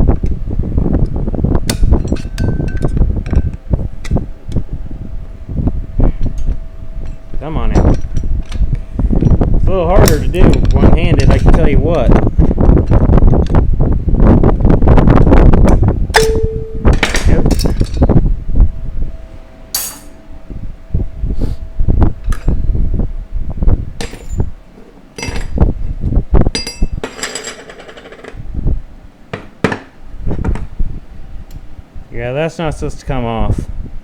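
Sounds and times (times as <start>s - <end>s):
metal on metal clinks and knocks: 19.8s - 20.2s
metal parts clattering: 19.8s - 20.2s, 26.7s - 28.3s.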